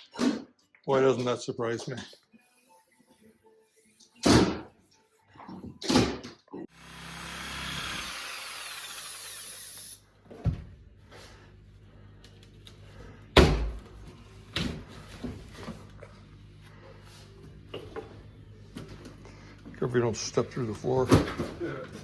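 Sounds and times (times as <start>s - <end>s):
power tool running: 6.7s - 10.0s.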